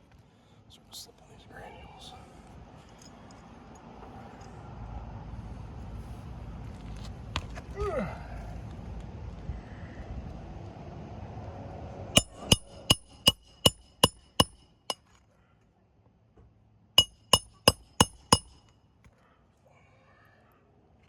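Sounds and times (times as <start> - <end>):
hammer striking nail ringing: 12.2 - 15.1, 17.0 - 18.7.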